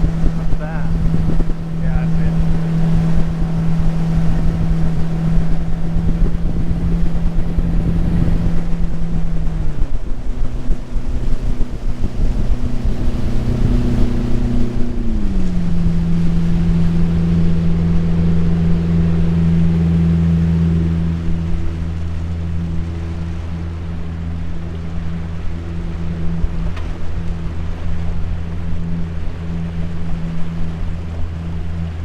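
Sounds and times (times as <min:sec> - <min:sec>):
jet boat motor running: 0:00.0 - 0:32.0.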